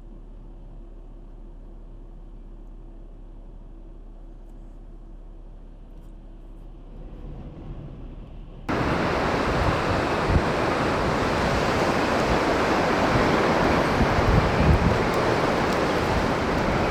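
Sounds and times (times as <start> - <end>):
wind buffeting microphone: 8.7 - 16.9.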